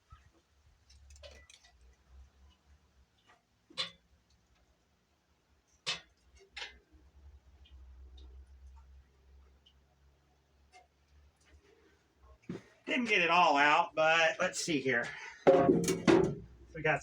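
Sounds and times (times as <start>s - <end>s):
sharp clicks and knocks: 15.5s - 16.6s.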